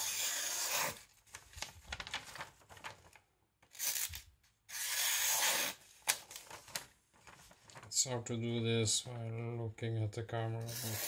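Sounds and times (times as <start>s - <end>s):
paper rustling: 0.8s - 4.3s, 5.9s - 8.0s.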